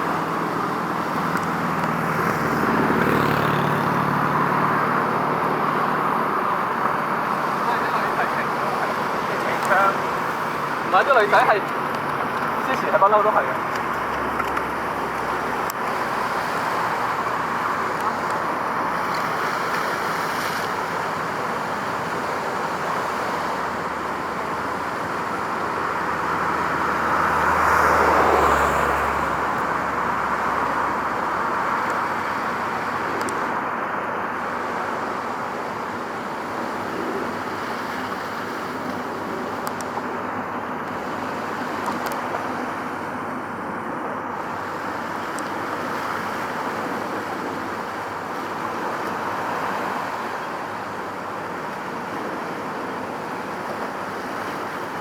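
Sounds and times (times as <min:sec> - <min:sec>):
vehicle passing close: 0:00.0 - 0:33.6
road traffic noise: 0:00.0 - 0:55.0.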